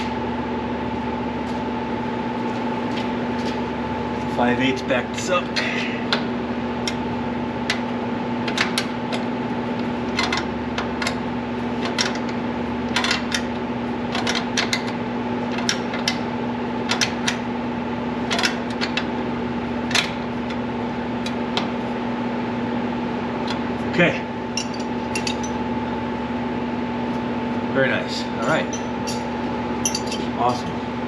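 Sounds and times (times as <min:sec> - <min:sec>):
steady background hum: 0:00.0 - 0:31.0.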